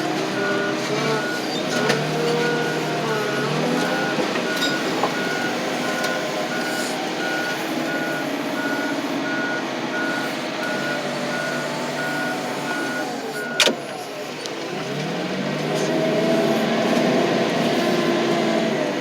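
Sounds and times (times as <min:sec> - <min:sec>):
heavy machine engine running: 0:00.0 - 0:19.0
reversing alarm beeping: 0:00.3 - 0:13.8.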